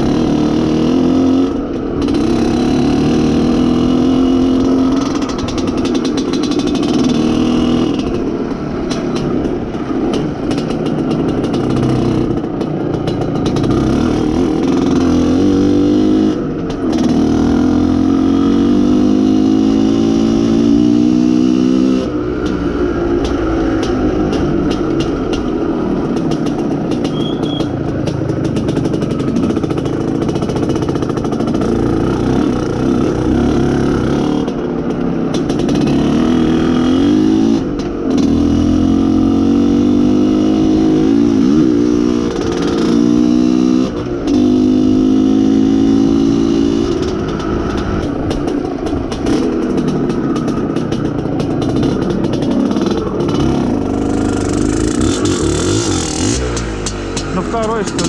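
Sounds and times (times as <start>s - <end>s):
two-stroke motorcycle engine revving: 0.0s - 58.0s.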